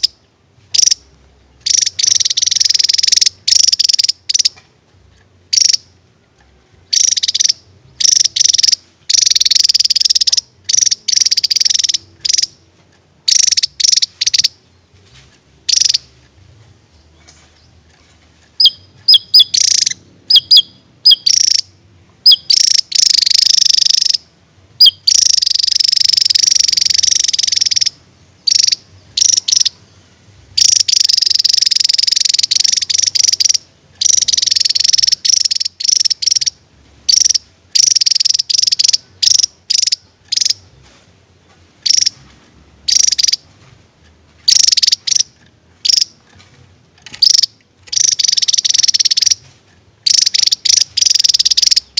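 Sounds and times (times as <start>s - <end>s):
bird singing rapid high notes: 0.0s - 4.6s, 6.8s - 12.6s, 13.3s - 16.2s, 18.6s - 40.9s, 47.0s - 51.9s.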